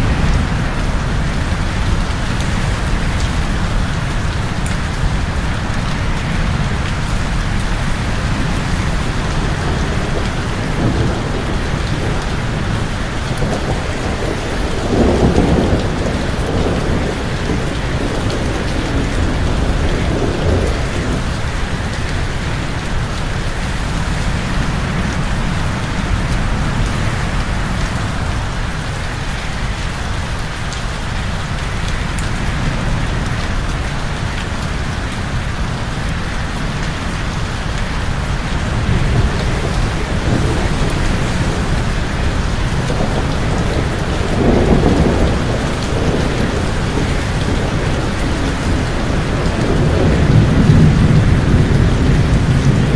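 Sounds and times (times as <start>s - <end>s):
heavy rain falling: 0.0s - 52.9s
thunder rumbling: 0.0s - 52.9s.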